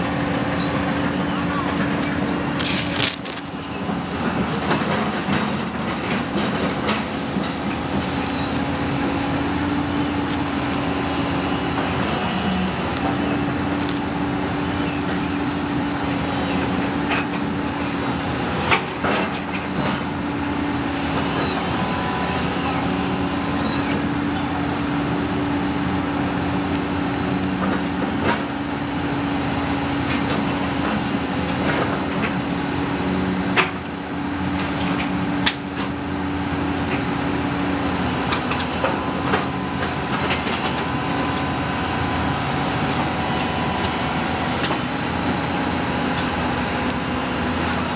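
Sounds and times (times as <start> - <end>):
excavator engine droning: 0.0 - 47.9
high squeaks: 0.6 - 33.4.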